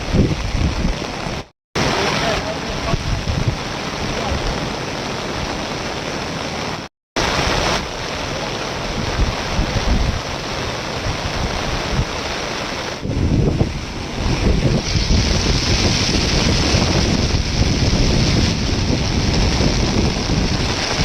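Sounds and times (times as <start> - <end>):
floodwater rushing: 0.0 - 21.0.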